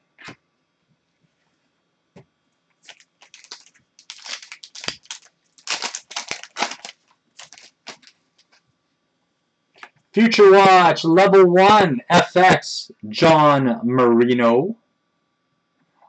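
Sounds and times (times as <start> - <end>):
trading cards and wrapper rustling: 2.8 - 8.6.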